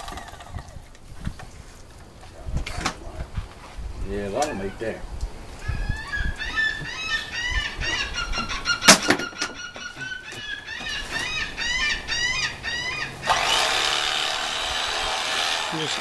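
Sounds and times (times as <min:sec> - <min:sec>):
bird squealing chirps: 0:05.6 - 0:13.3.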